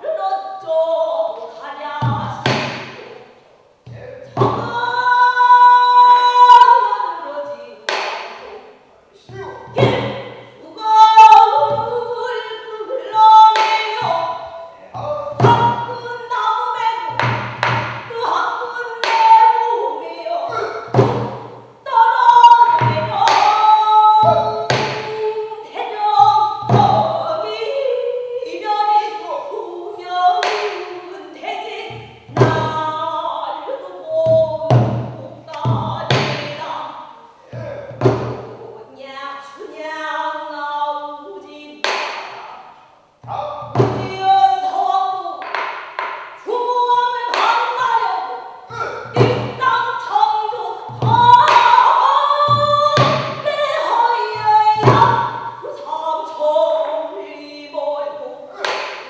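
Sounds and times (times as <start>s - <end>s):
person singing: 9.2s - 17.2s, 18.1s - 21.0s, 21.9s - 36.8s
barrel drum strokes: 13.2s - 16.1s, 20.5s - 21.6s, 37.6s - 38.6s, 43.2s - 44.4s, 48.8s - 49.8s
solo voice singing long notes: 22.2s - 25.4s.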